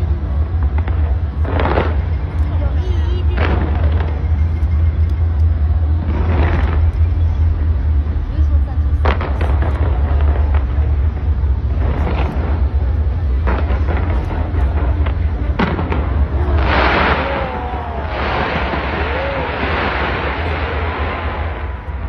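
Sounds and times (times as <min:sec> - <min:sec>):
crackle of sparks: 0:00.0 - 0:07.9, 0:08.9 - 0:22.0
deep steady rumble: 0:00.0 - 0:22.0
fireworks bangs: 0:03.2 - 0:04.5, 0:06.0 - 0:07.4, 0:09.0 - 0:22.0.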